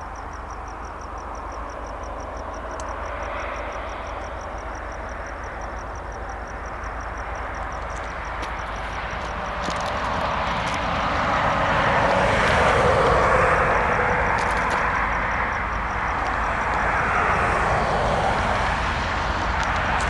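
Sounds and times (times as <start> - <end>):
freight train rumbling past: 8.8 - 20.0.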